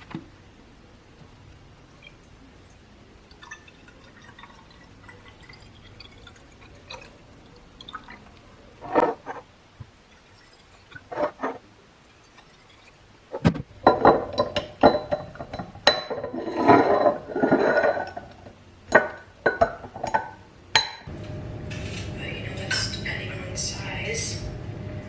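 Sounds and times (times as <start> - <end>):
glass containers clinking: 8.8 - 9.5, 10.1 - 11.6, 12.2 - 21.1.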